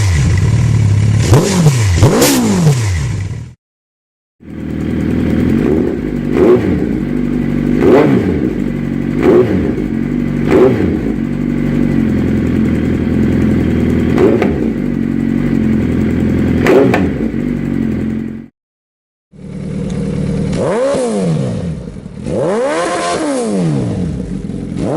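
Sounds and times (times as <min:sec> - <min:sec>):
motorcycle engine idling: 0:00.1 - 0:01.3, 0:04.4 - 0:18.5, 0:19.3 - 0:22.4, 0:24.0 - 0:24.9
motorcycle throttle blips: 0:04.4 - 0:18.5, 0:19.4 - 0:24.9.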